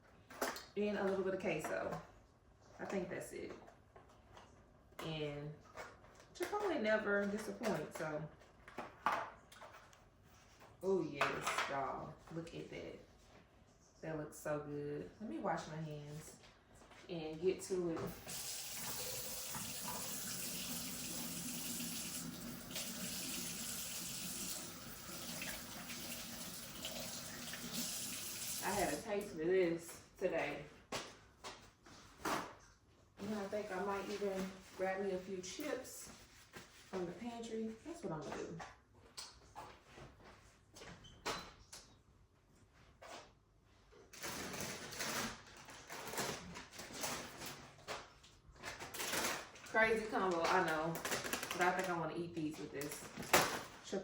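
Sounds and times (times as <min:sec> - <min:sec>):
tap running: 0:18.0 - 0:29.0
chip bag crinkling: 0:50.9 - 0:51.9.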